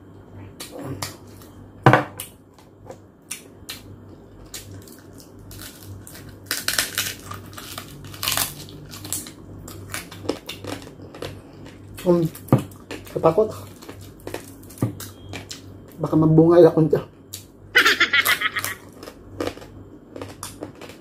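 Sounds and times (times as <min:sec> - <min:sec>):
crisp pork skin crunching: 0:03.3 - 0:16.1, 0:18.2 - 0:21.0.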